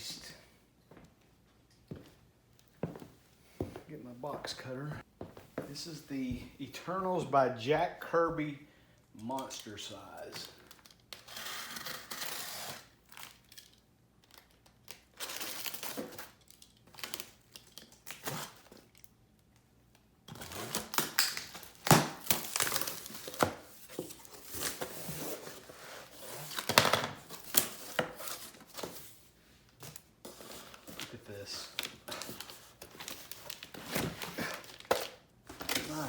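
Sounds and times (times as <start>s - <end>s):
packaging crinkling and rustling: 9.4s - 19.1s, 20.3s - 36.0s
cardboard tearing: 11.2s - 13.4s, 30.3s - 36.0s.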